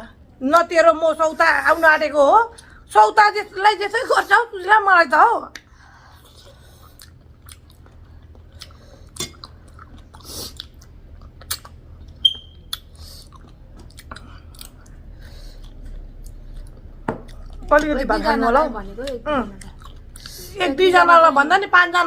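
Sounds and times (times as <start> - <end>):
person chewing food: 5.5 - 17.9, 19.0 - 20.6
wet mouth clicks: 8.5 - 15.0
high squeak: 12.2 - 12.7.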